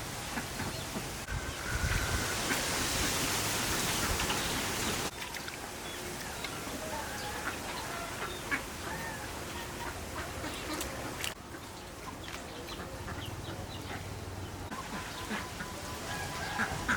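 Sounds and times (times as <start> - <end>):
steady rushing hiss: 0.0 - 12.0
poultry calling: 6.3 - 14.2, 14.8 - 16.9.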